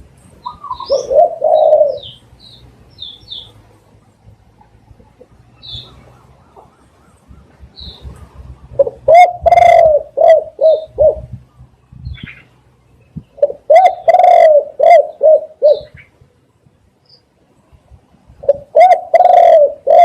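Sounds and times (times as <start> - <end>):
dove cooing: 0.4 - 2.3, 4.6 - 11.4, 13.4 - 16.1, 18.4 - 20.0
small bird chirping: 0.4 - 3.7, 4.6 - 8.2.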